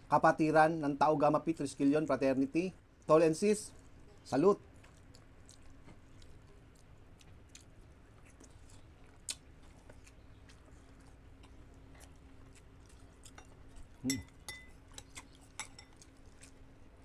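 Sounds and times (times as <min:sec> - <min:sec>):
low steady hum: 0:00.0 - 0:17.0
chewing and mouth clicks: 0:03.7 - 0:17.0.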